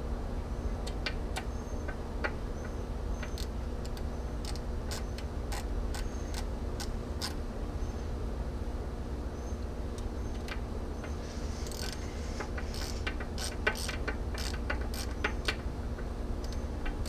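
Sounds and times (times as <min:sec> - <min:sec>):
ratchet wrench clicking: 0:03.2 - 0:07.4, 0:11.6 - 0:15.6.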